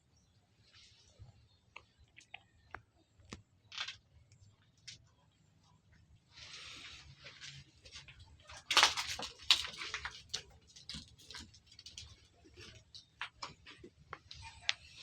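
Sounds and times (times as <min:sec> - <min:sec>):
goats moving about: 0:07.2 - 0:14.3
light clicks and rustling: 0:07.3 - 0:14.8.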